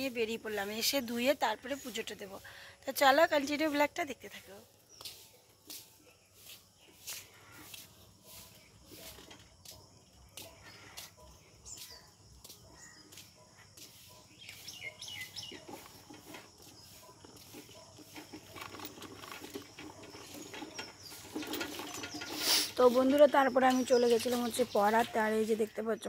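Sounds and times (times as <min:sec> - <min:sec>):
bird chirps and calls: 0:10.3 - 0:18.2, 0:19.8 - 0:26.0.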